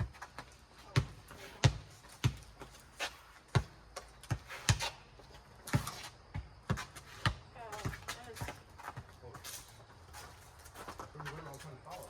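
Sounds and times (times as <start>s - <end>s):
rubber ball bouncing on concrete: 0.0s - 2.8s.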